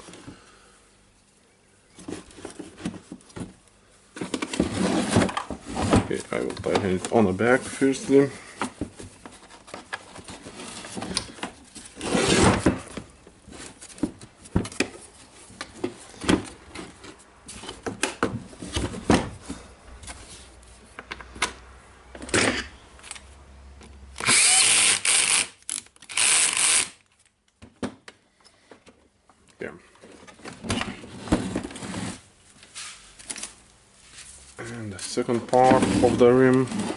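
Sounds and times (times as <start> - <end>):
power drill driving screws: 24.2 - 27.0.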